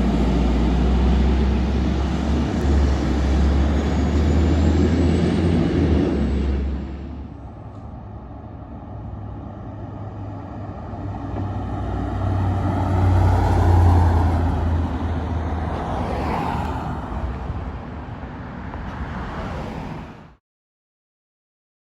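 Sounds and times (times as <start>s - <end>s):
vehicle driving past: 10.1s - 17.8s.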